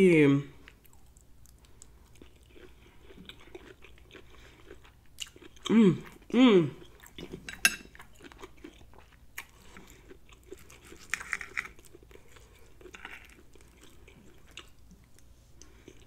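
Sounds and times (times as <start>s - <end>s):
person chewing: 0.6s - 16.0s
cutlery clicking and scraping on plate: 7.5s - 7.9s.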